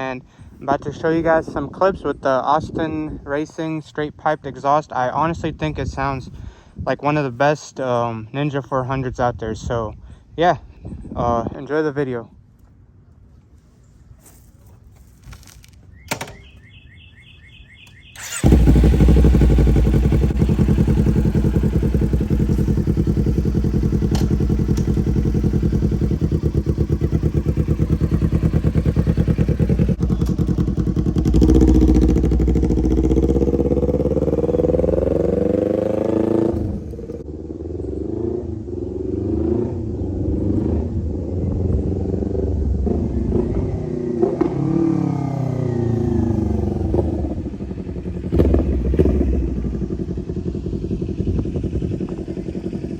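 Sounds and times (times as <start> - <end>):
motorcycle engine revving: 18.2 - 52.9.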